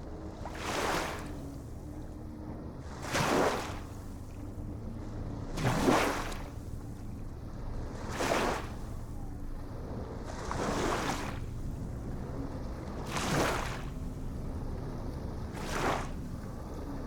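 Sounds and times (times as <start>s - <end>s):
low rumble of water: 0.0s - 17.0s
small waves washing in: 0.3s - 1.8s, 2.8s - 4.3s, 5.4s - 9.2s, 10.1s - 17.0s.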